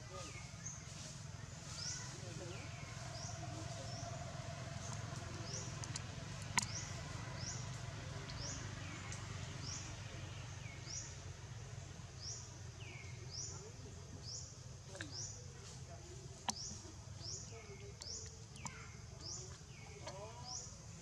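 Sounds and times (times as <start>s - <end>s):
bird chirping: 0.0s - 11.1s, 16.4s - 21.0s.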